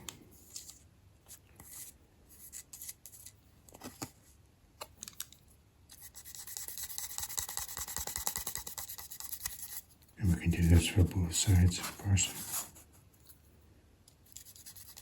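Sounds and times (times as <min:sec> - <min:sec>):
pen scratching on metal: 0:05.9 - 0:09.8, 0:14.3 - 0:15.0.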